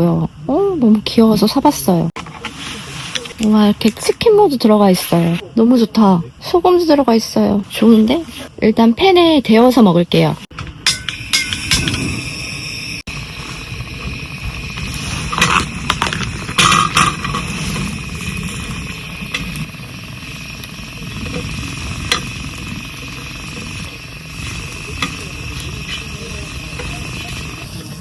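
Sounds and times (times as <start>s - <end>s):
cooking gear clinking: 10.6s - 12.1s, 15.2s - 19.7s.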